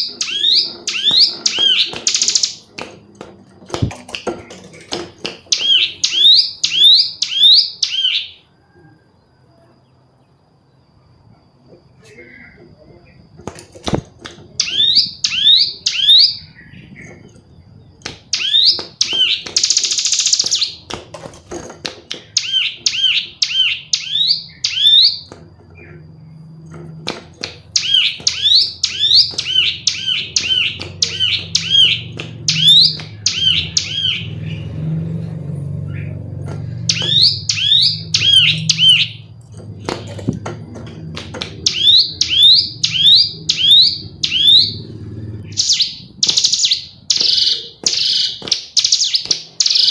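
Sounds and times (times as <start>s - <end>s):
bird rapid rising chirps: 0.0s - 2.7s, 5.5s - 8.4s, 14.5s - 20.9s, 27.6s - 40.2s, 41.0s - 49.9s.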